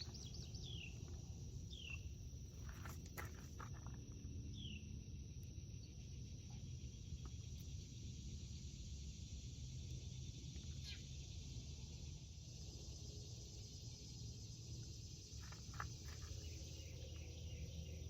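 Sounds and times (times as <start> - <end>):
insect chorus drone: 0.0 - 18.0.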